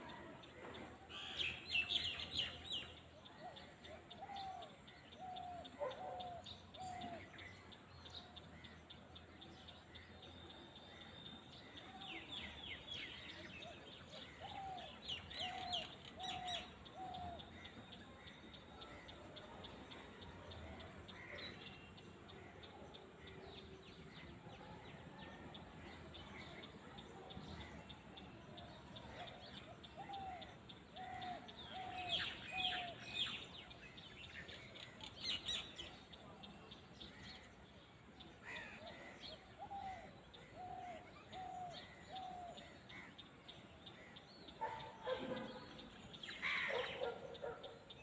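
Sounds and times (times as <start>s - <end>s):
birds calling: 43.9s - 48.0s.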